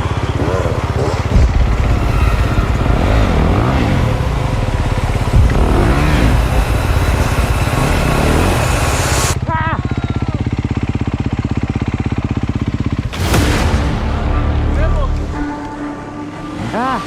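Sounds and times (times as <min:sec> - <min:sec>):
dirt bike engine revving: 0:00.0 - 0:09.4
sharp knock: 0:01.3 - 0:08.8.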